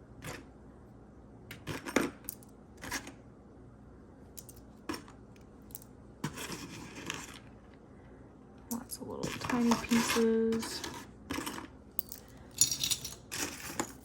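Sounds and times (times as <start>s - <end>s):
rustling scrape: 6.2s - 7.5s
jewelry clinking: 8.8s - 14.0s.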